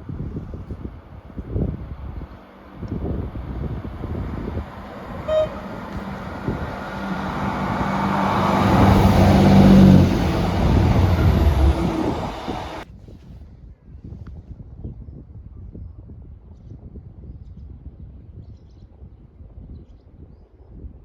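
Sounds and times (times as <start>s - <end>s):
diesel train passing: 1.6s - 12.8s
train horn toot: 4.8s - 12.8s.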